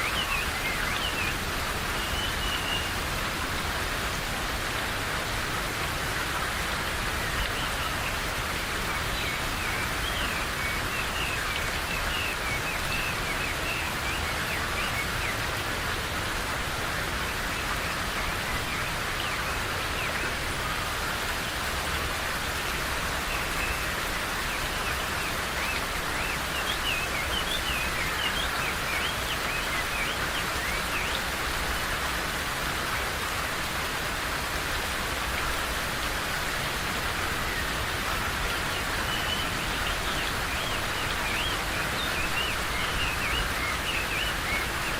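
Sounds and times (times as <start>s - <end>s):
rain falling in forest: 0.0s - 44.9s
small birds chirping: 36.3s - 44.9s.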